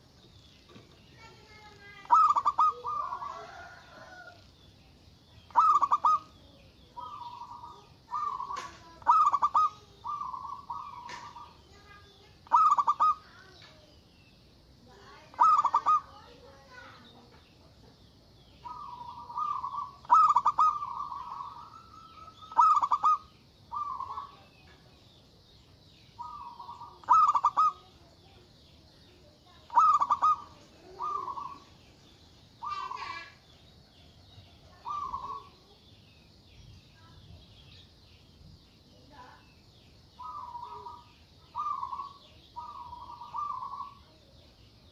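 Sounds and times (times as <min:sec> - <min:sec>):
faint high chirping: 0:00.0 - 0:44.9
dove cooing: 0:01.5 - 0:04.4, 0:05.4 - 0:13.5, 0:15.3 - 0:16.4, 0:18.6 - 0:24.7, 0:26.2 - 0:28.4, 0:29.2 - 0:31.8, 0:32.6 - 0:33.4, 0:34.7 - 0:35.8, 0:40.2 - 0:44.2.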